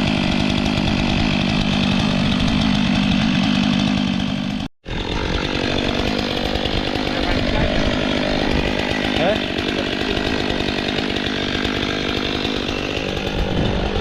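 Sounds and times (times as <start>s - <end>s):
chainsaw cutting wood: 0.0s - 14.0s.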